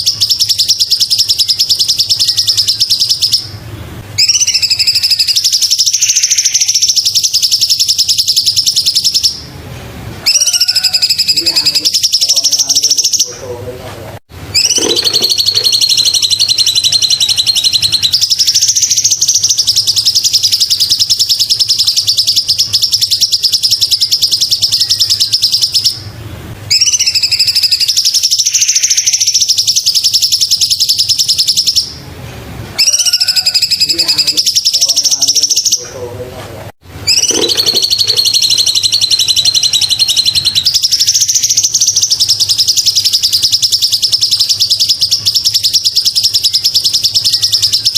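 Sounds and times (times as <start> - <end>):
bird song rapid high trills: 0.0 - 9.5, 10.2 - 13.4, 14.5 - 32.0, 32.8 - 36.0, 37.0 - 47.9.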